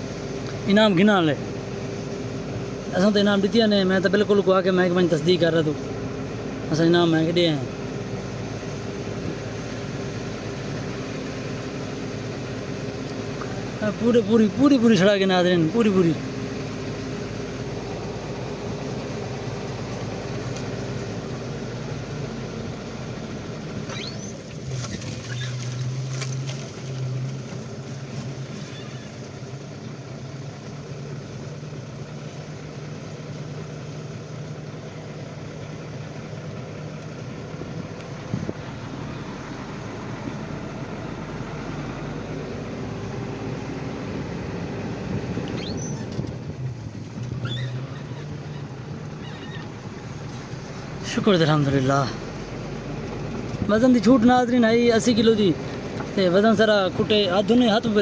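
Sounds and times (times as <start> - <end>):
road noise: 0.0 - 58.0
vehicle engine humming: 0.0 - 58.0
high chirps or squeaks: 23.9 - 25.8, 28.6 - 29.2, 45.5 - 46.2, 47.3 - 49.7.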